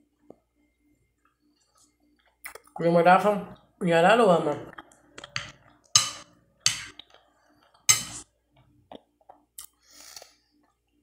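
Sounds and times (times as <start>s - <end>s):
person chewing food: 1.1s - 2.8s, 6.9s - 7.9s, 8.8s - 11.0s.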